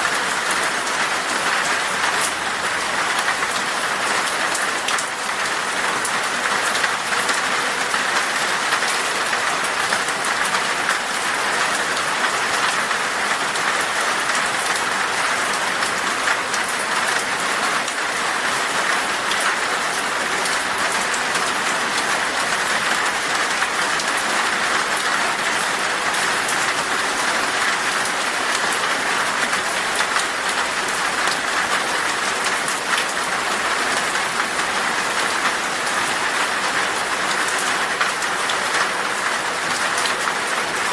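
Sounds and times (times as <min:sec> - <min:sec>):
heavy rain on glass: 0:00.0 - 0:40.9.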